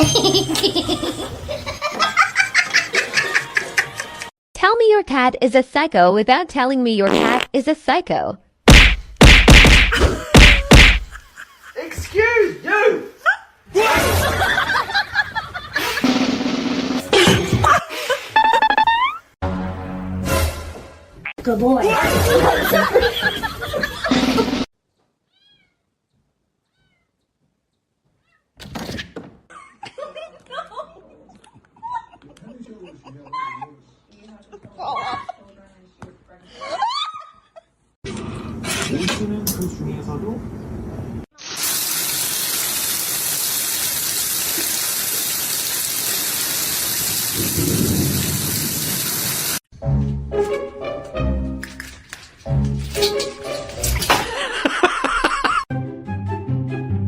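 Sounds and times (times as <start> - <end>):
heavy rain hissing: 41.4 - 49.6.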